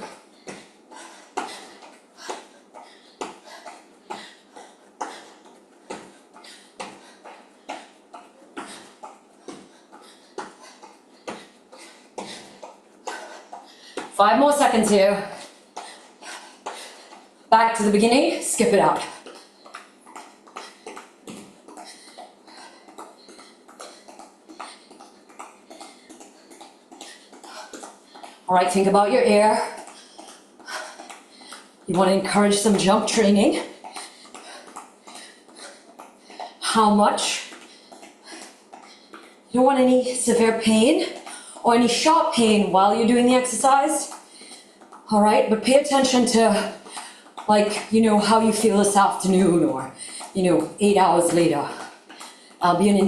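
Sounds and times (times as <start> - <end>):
short hard breaths: 19.0 - 28.5, 37.4 - 39.5
shoes thudding on floor: 20.1 - 21.9.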